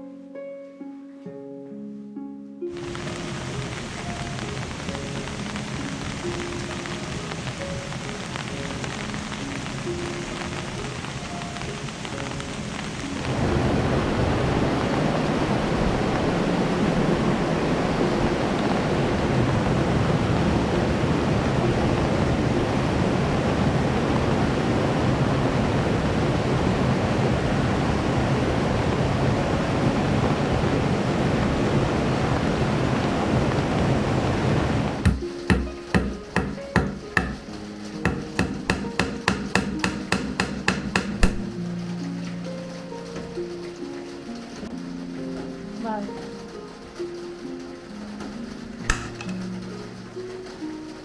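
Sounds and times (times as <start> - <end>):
sharp knock: 35.0 - 41.5
heavy rain pouring: 41.5 - 51.0.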